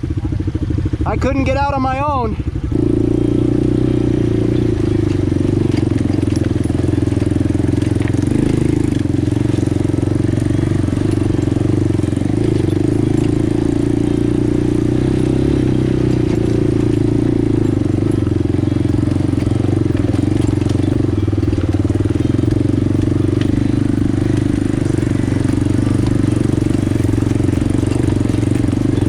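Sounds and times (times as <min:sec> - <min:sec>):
atv engine running: 0:00.0 - 0:29.0.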